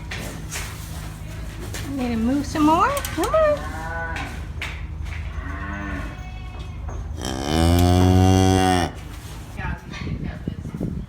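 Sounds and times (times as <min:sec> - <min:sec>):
cow mooing: 0:05.3 - 0:06.2, 0:07.1 - 0:09.1.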